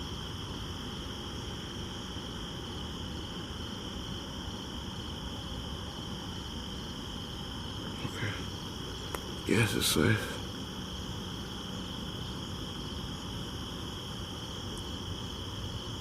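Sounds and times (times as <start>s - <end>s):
night insects chorus: 0.0s - 16.0s.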